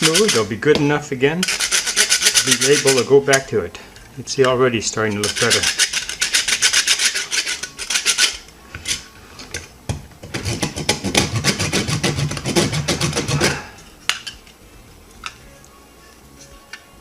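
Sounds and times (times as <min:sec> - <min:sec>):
wood rasp filing: 0:00.0 - 0:00.5, 0:01.4 - 0:03.1, 0:05.2 - 0:09.0, 0:10.3 - 0:13.7.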